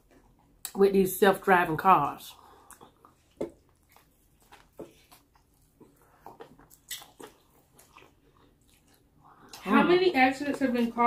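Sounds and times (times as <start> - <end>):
wet chewing with mouth smacks: 2.1 - 9.8
biting sandwich: 2.6 - 9.1.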